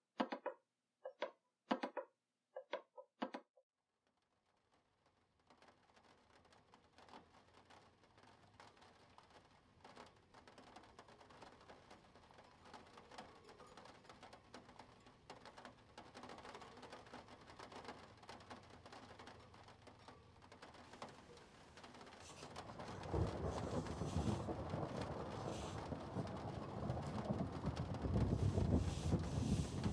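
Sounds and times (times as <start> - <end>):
small plastic clicks: 0.2 - 3.5.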